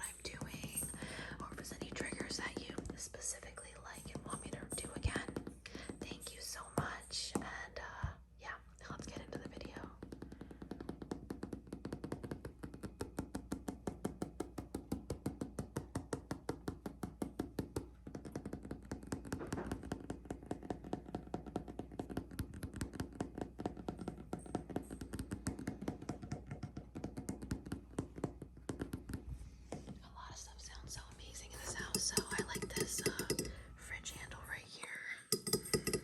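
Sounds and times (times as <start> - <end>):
fingers tapping on hard object: 0.0 - 8.2, 8.8 - 36.0.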